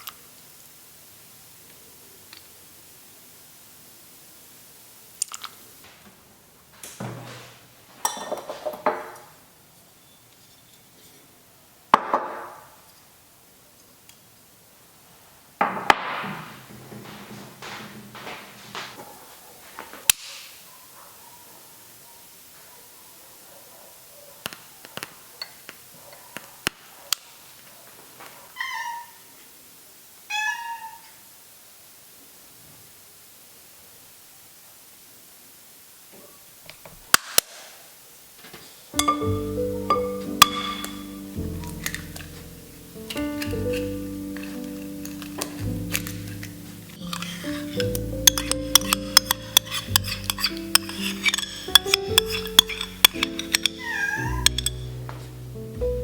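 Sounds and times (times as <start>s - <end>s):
kitchenware clinking: 8.0s - 9.1s, 39.0s - 55.3s
cat meowing: 28.6s - 29.2s, 30.3s - 31.2s, 53.7s - 54.6s.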